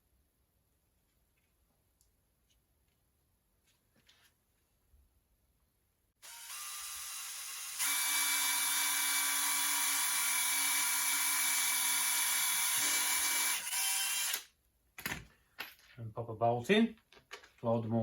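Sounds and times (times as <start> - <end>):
power drill boring plastic: 6.2 - 14.5.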